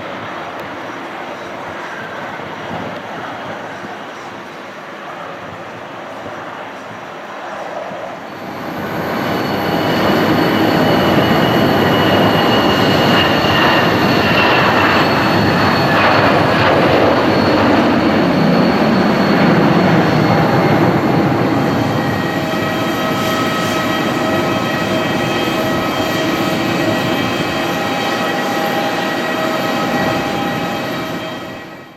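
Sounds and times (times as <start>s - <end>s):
jet engines passing: 5.7s - 31.9s.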